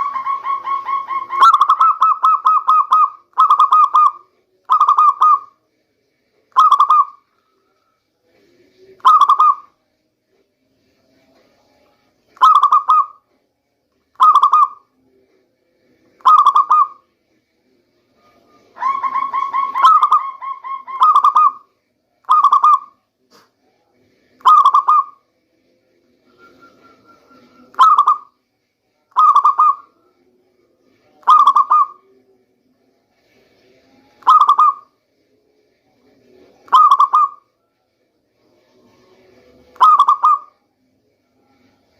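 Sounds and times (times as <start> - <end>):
dove cooing: 0.0 - 5.5, 6.6 - 7.2, 9.0 - 9.7, 12.4 - 13.2, 14.2 - 14.8, 16.2 - 17.0, 18.8 - 23.0, 24.4 - 25.2, 26.6 - 28.3, 29.1 - 29.9, 31.2 - 32.0, 34.2 - 34.9, 36.7 - 37.4, 39.8 - 40.6.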